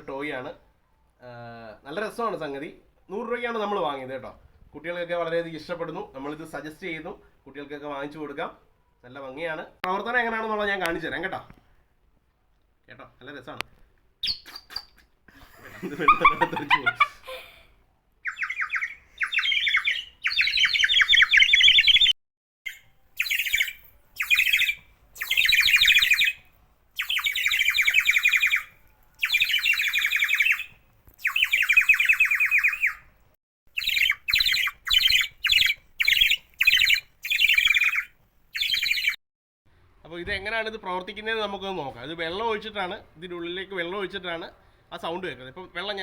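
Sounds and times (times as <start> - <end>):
clay bird whistle warbling: 18.2 - 22.1, 22.7 - 26.4, 27.0 - 33.1, 33.7 - 39.2.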